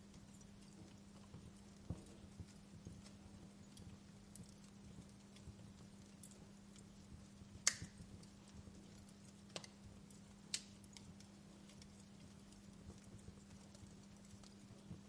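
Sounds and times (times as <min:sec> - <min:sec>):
wood fire crackling: 0:00.0 - 0:15.0
sharp pops from fire: 0:03.7 - 0:13.4.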